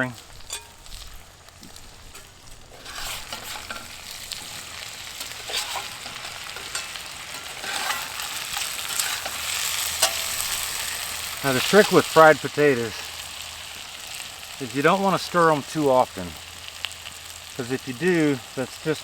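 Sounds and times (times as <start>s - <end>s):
potatoes sizzling in oil: 0.0s - 19.0s
spatula scraping a skillet: 0.1s - 12.4s.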